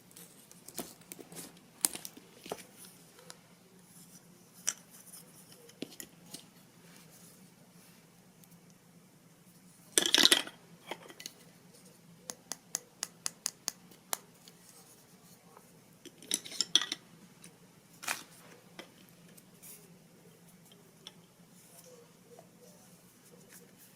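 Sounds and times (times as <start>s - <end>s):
small objects clattering: 10.0s - 11.3s.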